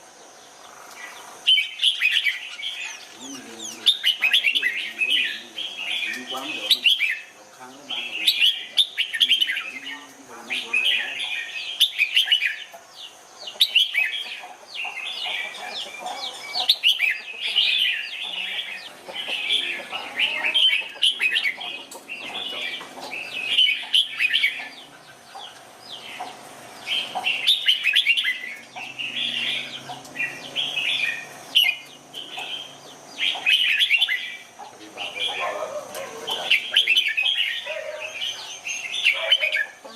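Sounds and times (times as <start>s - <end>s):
birds singing warbled phrases: 0.0s - 39.9s.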